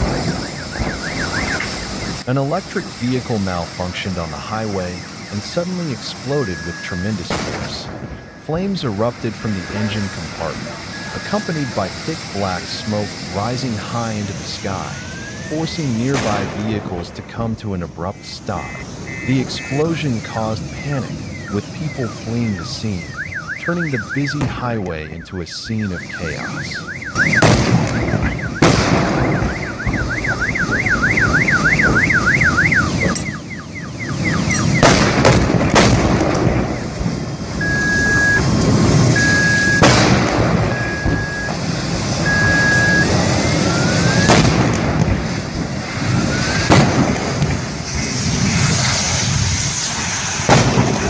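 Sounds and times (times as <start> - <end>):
car alarm warbling: 0.0 - 2.2, 10.8 - 11.8, 18.0 - 34.9, 36.6 - 39.9, 40.6 - 44.3
sharp cracks: 7.3 - 8.2, 16.0 - 17.5, 27.1 - 32.2, 34.4 - 37.1, 38.4 - 42.2, 44.0 - 51.0
short beeps: 37.6 - 38.5, 39.2 - 39.8, 40.7 - 41.6, 42.2 - 43.1.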